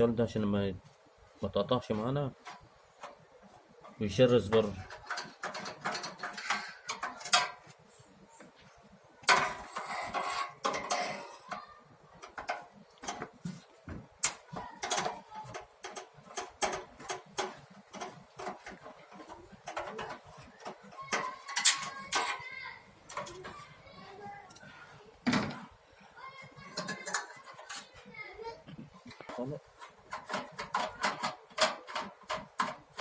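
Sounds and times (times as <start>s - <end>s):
metal tools clicking and clattering: 3.8s - 7.7s, 9.2s - 13.4s, 14.2s - 23.7s, 26.5s - 28.1s, 29.1s - 33.0s
metal parts rattling: 3.8s - 7.8s, 9.2s - 13.4s, 14.2s - 24.0s, 26.5s - 28.0s, 29.1s - 33.0s.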